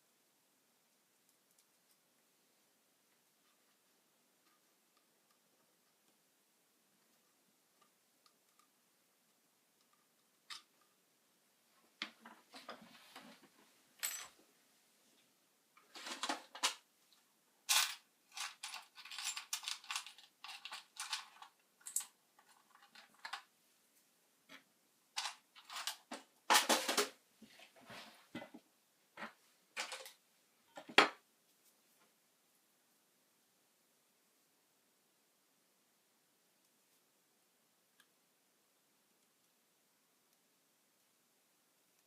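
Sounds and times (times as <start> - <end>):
small hard objects clattering: 17.7 - 23.5.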